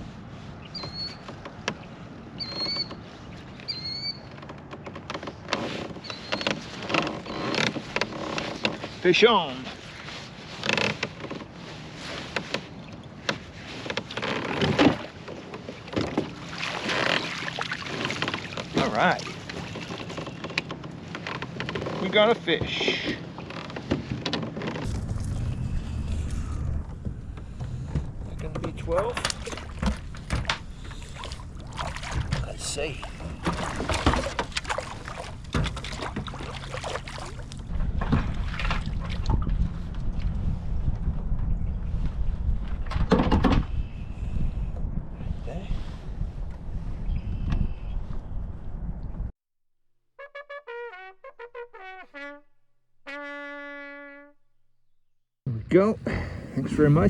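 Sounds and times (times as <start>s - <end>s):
kayak handling knocks and clicks: 1.2s - 1.9s, 4.3s - 9.0s, 12.2s - 17.3s, 19.5s - 24.9s, 26.9s - 31.3s
wind buffeting microphone: 24.9s - 49.3s.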